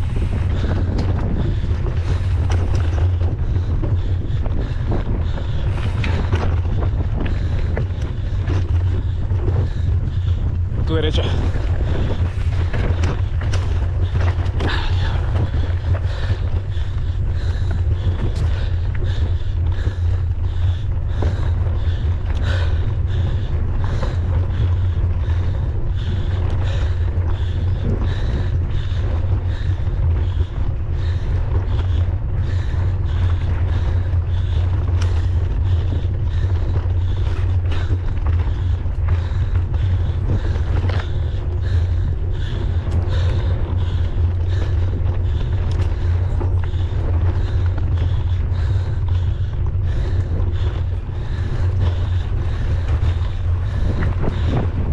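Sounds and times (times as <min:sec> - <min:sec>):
bike rattling over rough ground: 0:00.0 - 0:54.9
wind buffeting microphone: 0:00.0 - 0:54.9.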